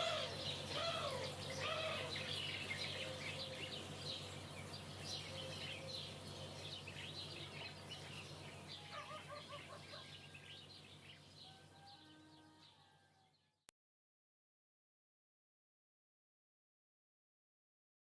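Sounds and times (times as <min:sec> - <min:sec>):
small birds chirping: 0:00.0 - 0:13.6.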